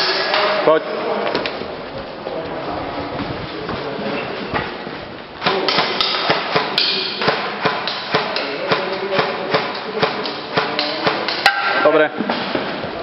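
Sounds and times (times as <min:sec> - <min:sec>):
airsoft gun firing: 0:05.4 - 0:11.7
pellets knocking on targets: 0:05.4 - 0:12.8.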